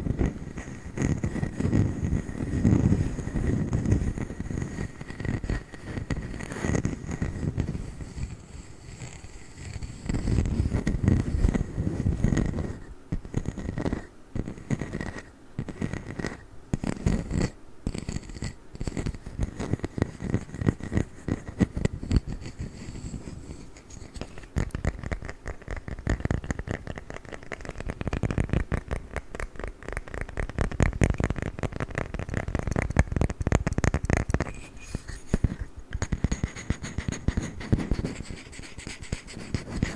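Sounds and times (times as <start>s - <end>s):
tapping and scratching on wood: 9.0s - 39.9s.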